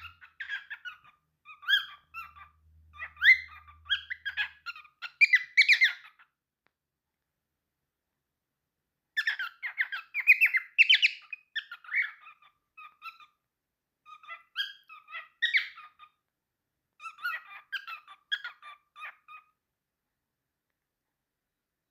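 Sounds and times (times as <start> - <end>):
cockatiel chirping: 0.0 - 6.4, 9.1 - 13.4, 14.0 - 16.2, 16.9 - 19.6.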